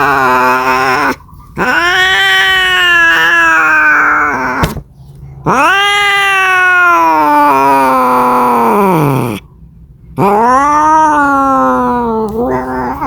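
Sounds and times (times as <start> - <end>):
cat yowling: 0.0 - 4.7, 5.4 - 9.4, 10.2 - 13.0.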